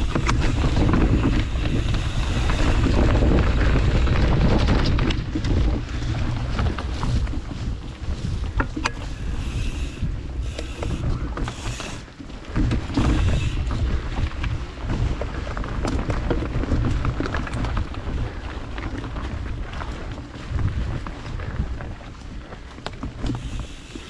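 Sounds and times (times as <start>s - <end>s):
bike chain and frame rattling: 0.0s - 24.0s
tyres on dirt: 0.0s - 24.0s
wind buffeting microphone: 0.0s - 24.0s
short hissing bursts: 9.0s - 12.1s.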